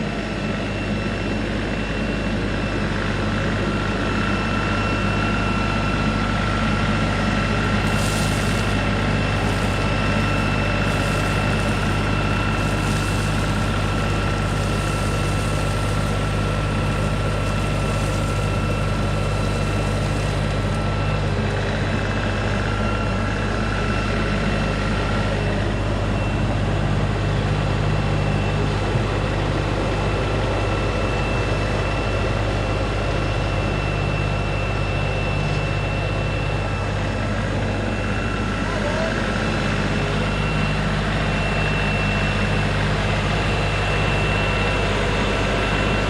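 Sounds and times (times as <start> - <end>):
tractor diesel engine running: 0.0 - 46.0
thin high whine: 7.2 - 24.4.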